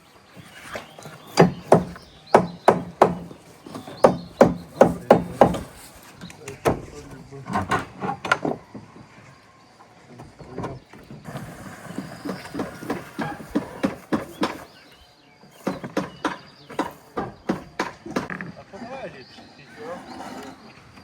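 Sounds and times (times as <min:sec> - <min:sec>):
sharp knocks on wood: 0:01.4 - 0:05.7, 0:12.3 - 0:14.7, 0:15.6 - 0:18.5.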